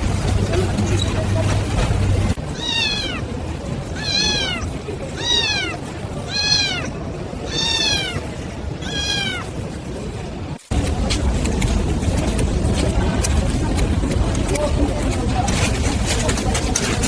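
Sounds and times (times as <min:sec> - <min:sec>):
kitten meowing: 0:02.5 - 0:03.2, 0:04.0 - 0:04.6, 0:05.2 - 0:08.2, 0:08.8 - 0:09.5.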